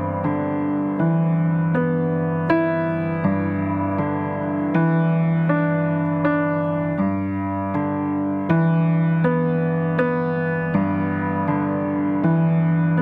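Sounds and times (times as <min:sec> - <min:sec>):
slow gentle piano music: 0:00.0 - 0:13.0.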